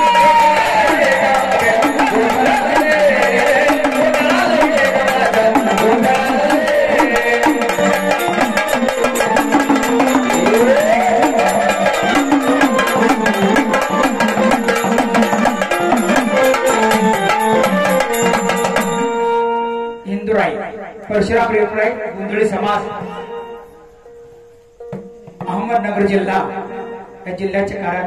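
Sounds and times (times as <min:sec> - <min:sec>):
fast dense drumming: 0:00.0 - 0:18.9
gliding melody line: 0:00.0 - 0:20.1.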